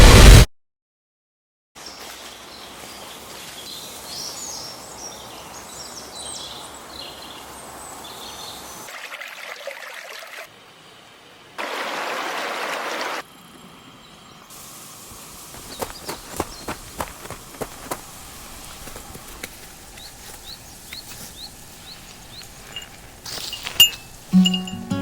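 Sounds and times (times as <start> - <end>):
loud even rushing noise: 0.0 - 0.5
running water: 14.5 - 24.7
birds chirping: 15.1 - 24.8.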